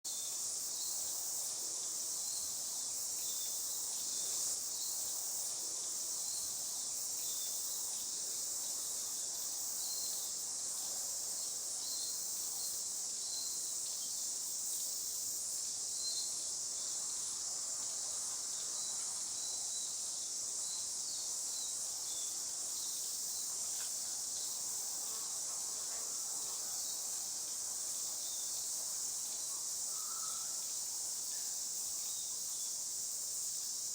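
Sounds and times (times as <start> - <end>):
high-pitched insect chorus: 11.4 - 33.9.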